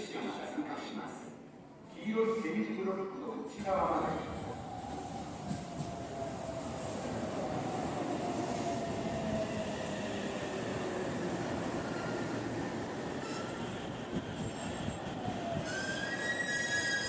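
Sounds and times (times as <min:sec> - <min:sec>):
high wheel squeal: 0:15.6 - 0:17.0.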